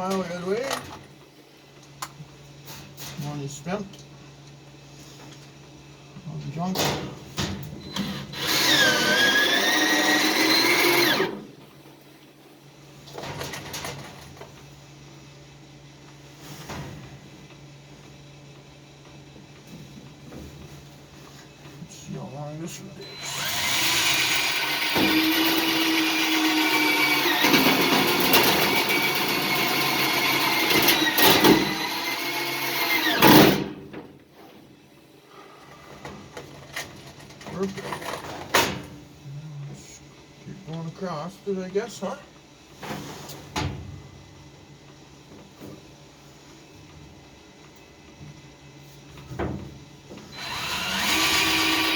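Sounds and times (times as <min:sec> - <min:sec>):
power drill whining: 0:08.0 - 0:11.4, 0:23.0 - 0:33.6, 0:50.3 - 0:51.9.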